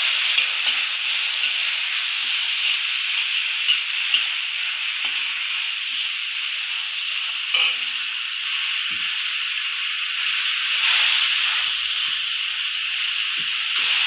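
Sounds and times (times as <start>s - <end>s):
greens sizzling in a wok: 0.0s - 14.0s.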